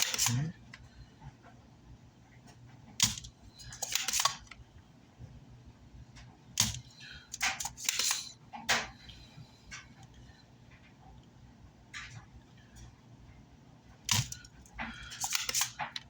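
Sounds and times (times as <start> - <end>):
desoldering pump snapping: 0.0 - 0.8, 3.0 - 4.6, 6.2 - 9.0, 14.0 - 16.0.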